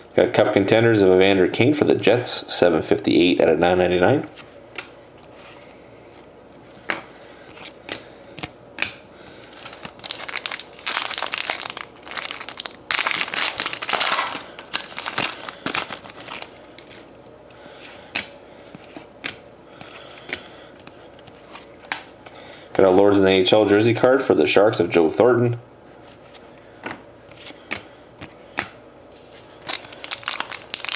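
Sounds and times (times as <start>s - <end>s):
plastic wrapper tearing and crinkling: 9.5s - 17.1s, 29.6s - 30.9s.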